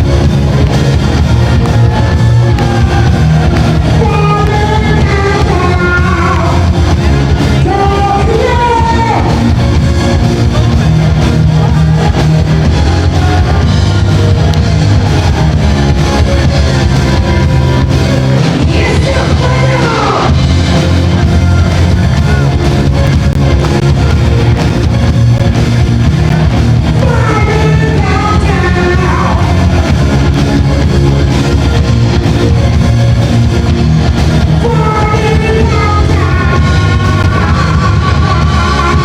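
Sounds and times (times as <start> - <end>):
rock band playing loudly: 0.0 - 39.0
person singing: 2.0 - 9.6, 18.4 - 21.8, 26.9 - 30.4, 34.6 - 39.0.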